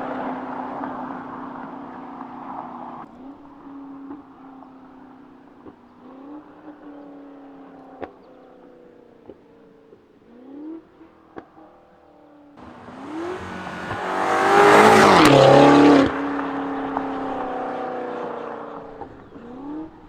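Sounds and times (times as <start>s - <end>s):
car exhaust revving: 12.6s - 19.2s
exhaust cracks: 12.6s - 20.0s.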